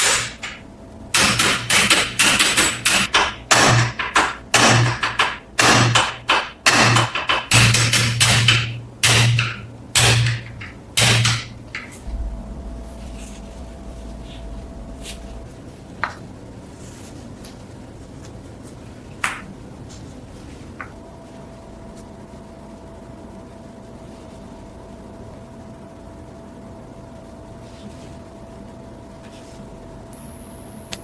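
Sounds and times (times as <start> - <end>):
low steady hum: 0.0 - 31.0
heavy knocks on metal: 1.2 - 15.5.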